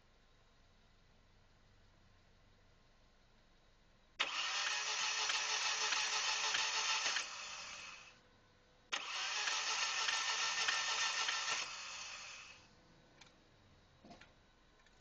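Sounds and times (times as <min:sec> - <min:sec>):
starter motor cranking engine: 0:04.2 - 0:08.1, 0:08.9 - 0:12.6.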